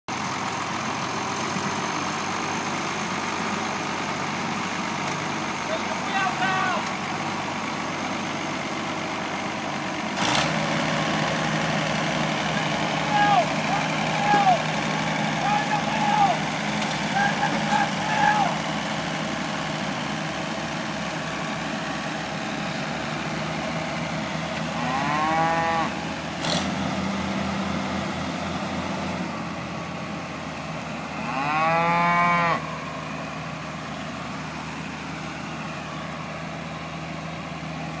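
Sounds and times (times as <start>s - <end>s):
tractor engine running: 0.0s - 31.4s, 32.6s - 38.0s
cows mooing: 24.7s - 26.0s, 31.1s - 32.7s.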